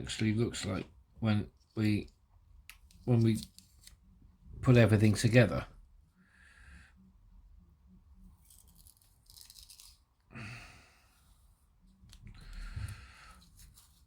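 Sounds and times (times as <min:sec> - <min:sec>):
plastic parts handling: 0:08.4 - 0:10.1.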